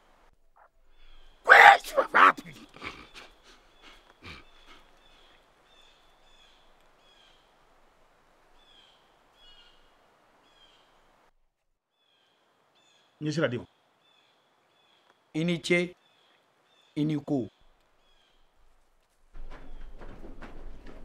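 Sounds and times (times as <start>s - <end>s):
bird chirping: 0.0s - 1.4s, 2.9s - 7.6s, 8.5s - 11.1s, 11.9s - 15.4s, 16.0s - 18.5s.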